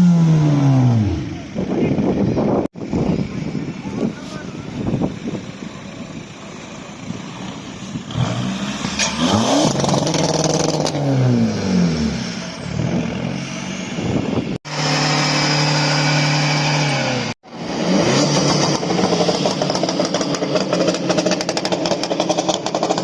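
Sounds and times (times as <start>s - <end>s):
engine held at high revs: 0.0s - 2.3s, 7.0s - 23.0s
car engine revving hard: 8.1s - 23.0s.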